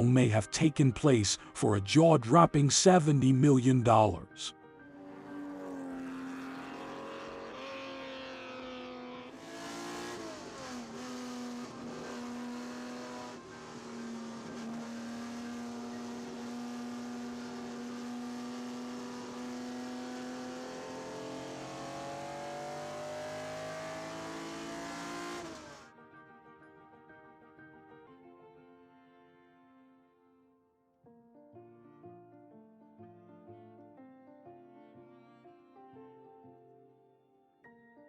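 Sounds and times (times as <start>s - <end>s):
car engine accelerating: 4.9s - 25.9s.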